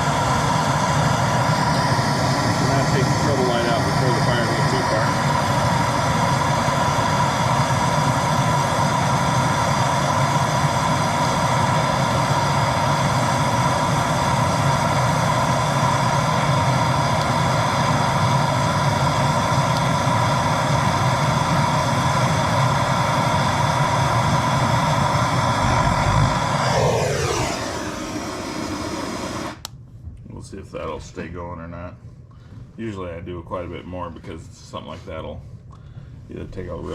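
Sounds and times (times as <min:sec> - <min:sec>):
propane torch hissing: 0:00.0 - 0:29.7
torch whistling tone: 0:00.0 - 0:29.7.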